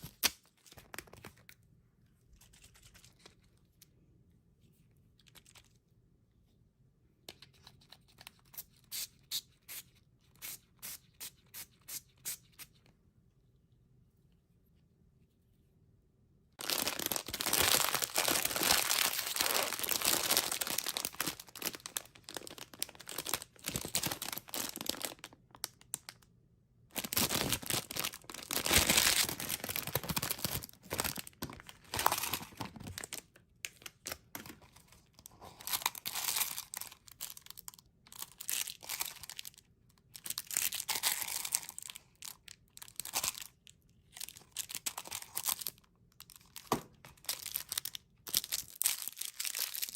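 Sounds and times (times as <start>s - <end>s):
candy wrappers crinkling and tearing: 16.6s - 26.3s, 26.9s - 49.9s.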